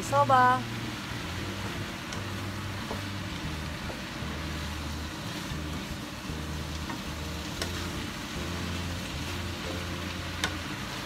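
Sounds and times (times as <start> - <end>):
noodles sizzling in a pan: 0.0 - 11.0
utensil clicking against pan: 2.1 - 2.3, 6.8 - 7.8, 10.4 - 10.6.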